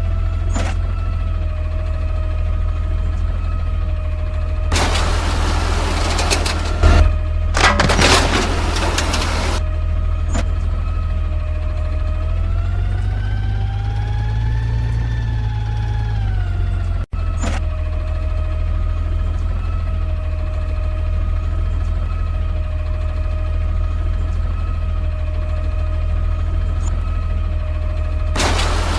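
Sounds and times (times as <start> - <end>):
garbage truck engine rumbling: 4.7 - 9.6, 28.4 - 28.9.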